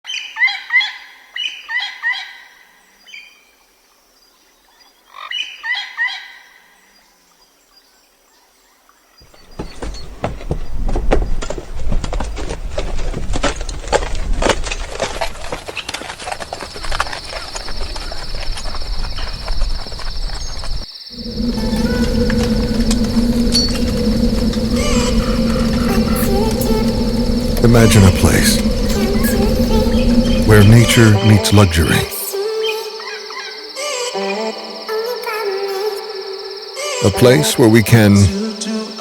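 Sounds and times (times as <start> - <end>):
dense crackling noise: 14.3 - 32.1
steady high buzz: 21.1 - 32.4
bird calls with ringing notes: 21.2 - 32.1.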